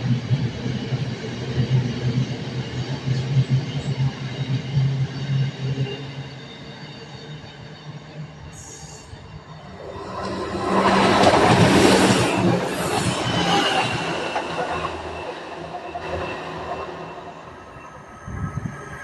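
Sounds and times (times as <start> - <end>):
train passing rumble: 7.7 - 19.0.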